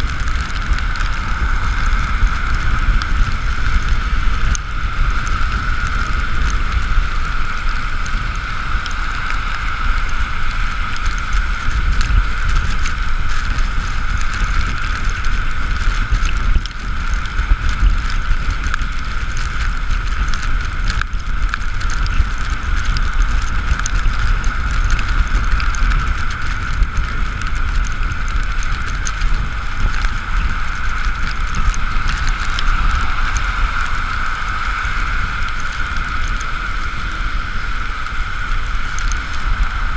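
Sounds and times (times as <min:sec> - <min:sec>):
wind rumble on microphone: 0:00.0 - 0:39.9
faint ticks: 0:38.6 - 0:39.8.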